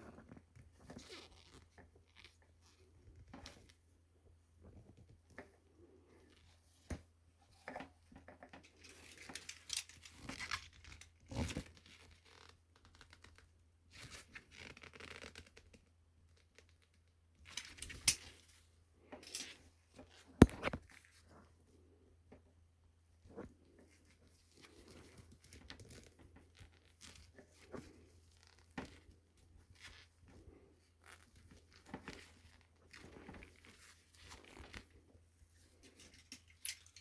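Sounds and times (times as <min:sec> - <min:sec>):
hands and tools scraping and rustling: 0:06.9 - 0:11.6, 0:35.6 - 0:37.0.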